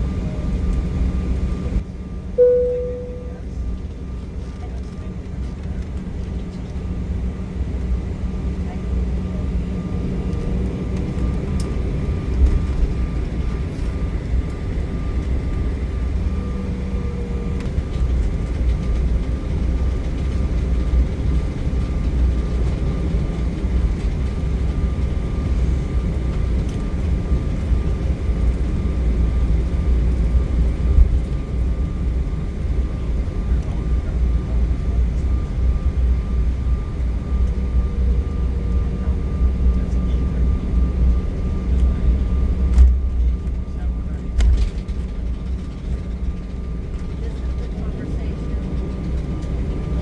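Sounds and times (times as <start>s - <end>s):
jet engines rumbling in cabin: 0.0s - 50.0s.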